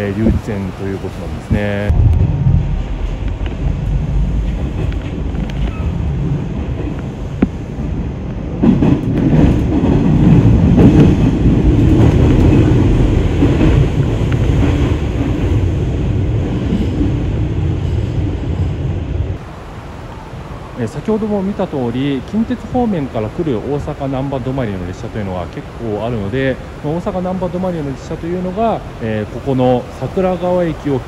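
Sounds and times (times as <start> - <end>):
train wheels rumbling on rails: 0.0 - 19.5
train clatter: 1.9 - 19.3.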